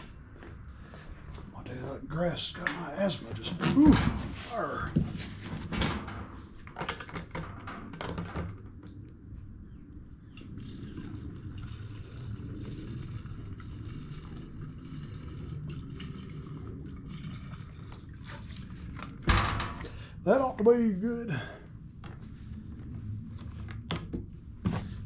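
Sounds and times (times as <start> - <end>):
gasoline pouring into tank: 10.3 - 19.9.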